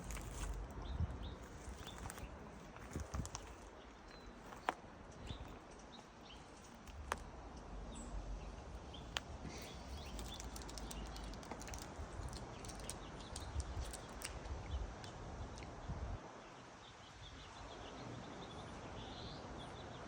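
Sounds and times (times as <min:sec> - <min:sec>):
wind buffeting microphone: 0:00.0 - 0:04.5, 0:09.9 - 0:16.2
light clicks and snaps: 0:09.9 - 0:15.7.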